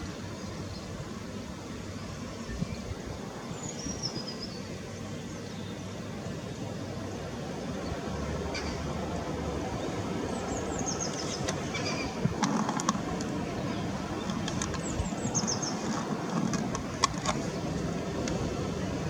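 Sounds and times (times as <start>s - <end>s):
traffic rumble: 0.0s - 19.0s
birds chirping: 9.6s - 17.9s.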